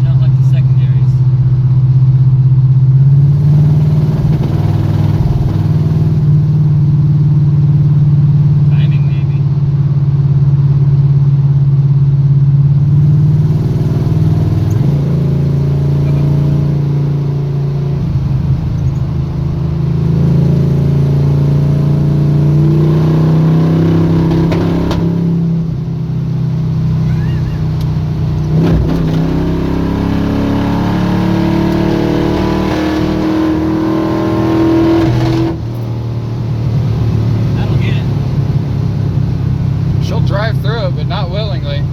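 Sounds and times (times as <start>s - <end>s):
truck engine accelerating: 0.0s - 41.9s.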